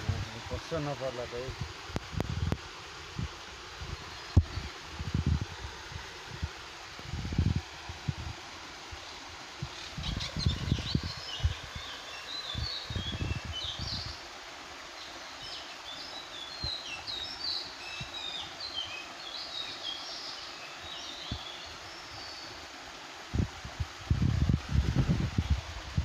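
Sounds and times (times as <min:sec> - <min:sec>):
waterfall rushing: 0:00.0 - 0:01.9
small birds chirping: 0:09.1 - 0:14.2, 0:15.0 - 0:22.6.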